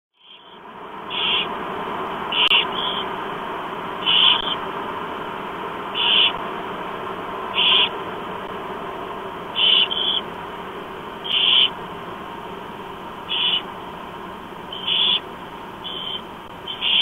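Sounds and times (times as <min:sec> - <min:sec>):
owl chicks rasping calls: 0:00.2 - 0:01.6, 0:02.3 - 0:03.2, 0:04.0 - 0:04.6, 0:05.9 - 0:06.4, 0:07.5 - 0:08.0, 0:09.5 - 0:10.4, 0:11.2 - 0:11.8, 0:13.2 - 0:13.9, 0:14.6 - 0:17.0
steady hiss: 0:00.2 - 0:17.0.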